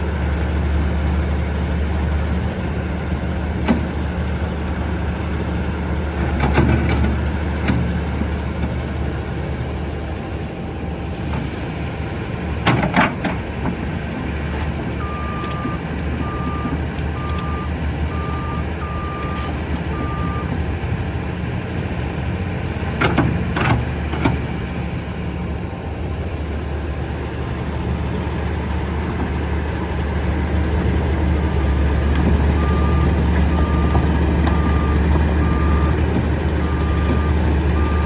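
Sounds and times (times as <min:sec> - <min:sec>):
diesel engine running: 0:00.0 - 0:38.0
warning alarm beeping: 0:15.0 - 0:20.4.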